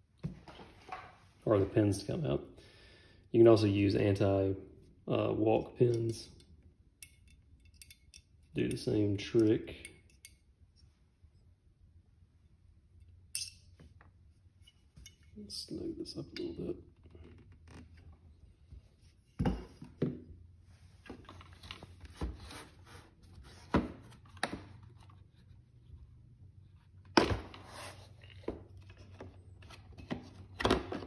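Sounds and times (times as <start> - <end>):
tools clicking and knocking: 5.9 - 10.4, 13.3 - 13.8.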